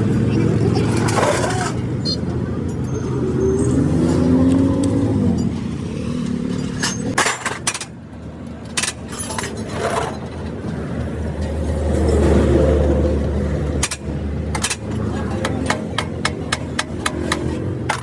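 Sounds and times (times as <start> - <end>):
truck and traffic engines: 0.0 - 18.0
metallic clanks and knocks: 13.8 - 18.0.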